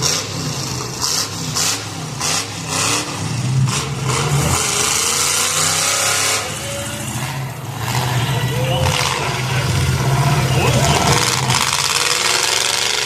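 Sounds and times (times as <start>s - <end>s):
car engines revving: 0.0s - 13.0s
rush of noise: 4.5s - 13.0s.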